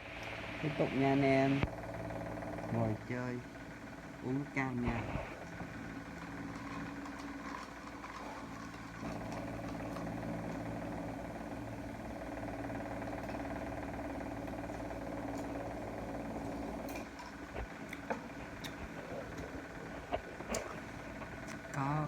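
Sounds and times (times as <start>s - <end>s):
mechanical hum: 0.0s - 22.0s.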